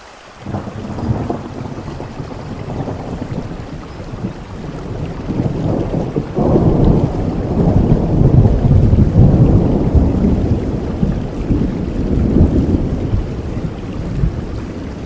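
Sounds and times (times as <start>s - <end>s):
steady rain: 0.0s - 15.0s
thunder rumbling: 0.4s - 15.0s.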